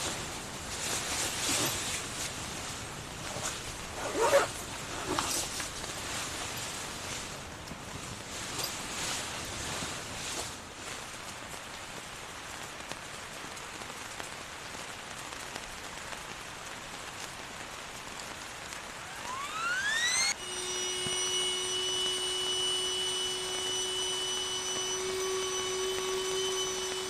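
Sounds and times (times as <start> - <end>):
high-pitched hum of held tones: 19.0 - 27.0
whistle-like rising tone: 19.0 - 27.0
heavy rain hissing: 21.4 - 27.0.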